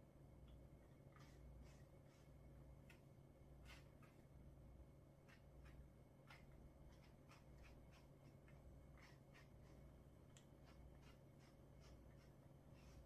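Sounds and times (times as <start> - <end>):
low steady hum: 0.0 - 13.0
brush scratching dog fur: 1.1 - 3.0, 3.6 - 4.3, 5.2 - 13.0.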